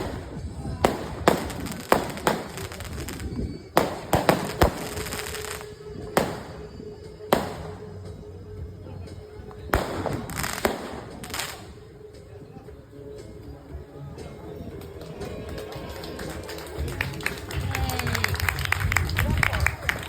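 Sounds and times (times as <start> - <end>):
fireworks bangs and crackle: 0.0 - 8.3, 9.0 - 11.8.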